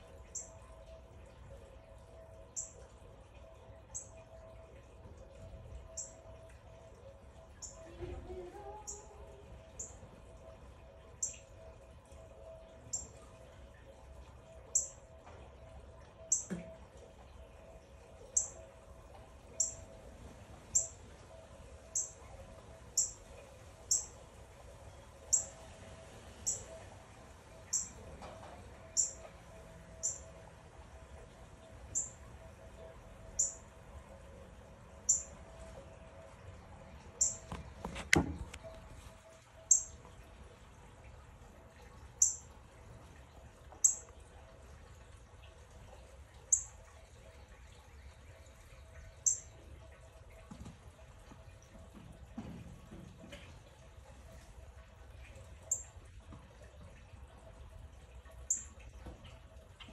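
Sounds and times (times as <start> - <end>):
small bird chirping: 0.3 - 0.6, 16.2 - 16.5, 19.5 - 19.8, 20.7 - 21.0, 21.9 - 23.2, 23.9 - 24.2, 25.3 - 25.6, 26.4 - 26.8, 27.7 - 28.0, 28.8 - 29.3, 30.0 - 30.3, 31.9 - 32.2, 33.3 - 33.6, 35.1 - 35.3, 37.1 - 37.5, 39.6 - 40.0, 42.2 - 42.4, 43.8 - 44.1, 49.1 - 49.6, 58.5 - 58.8.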